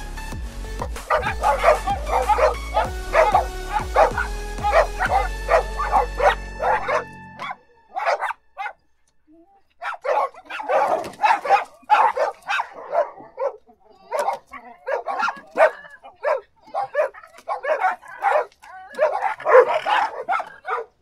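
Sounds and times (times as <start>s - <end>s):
background music: 0.0s - 13.1s
dog barking: 0.8s - 8.9s, 9.8s - 21.0s.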